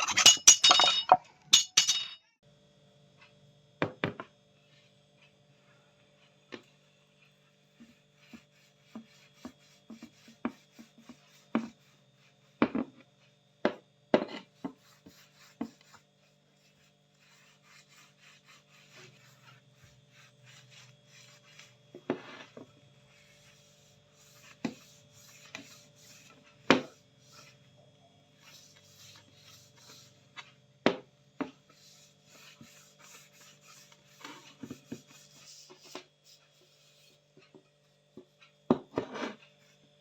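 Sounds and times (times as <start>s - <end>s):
filing or rasping wood: 7.3s - 12.6s, 14.2s - 27.7s, 28.4s - 30.6s, 31.6s - 37.3s.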